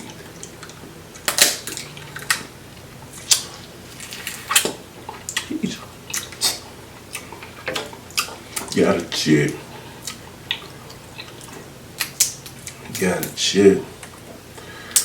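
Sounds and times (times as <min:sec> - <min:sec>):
shellfish shells cracking: 0:00.4 - 0:02.5.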